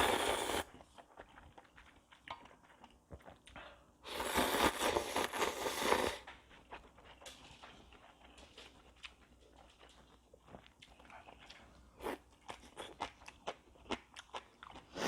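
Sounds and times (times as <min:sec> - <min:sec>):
person slurping noodles: 0:00.0 - 0:00.7, 0:04.1 - 0:06.2
chewing with wet clicks: 0:00.7 - 0:03.9, 0:06.2 - 0:15.0.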